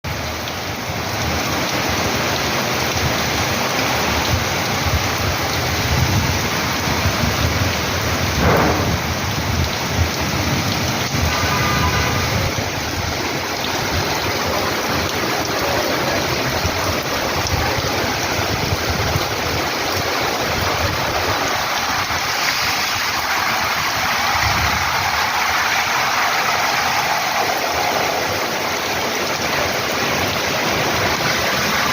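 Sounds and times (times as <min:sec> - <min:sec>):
rain falling: 0:00.1 - 0:31.9
low uneven rumble: 0:08.3 - 0:10.3.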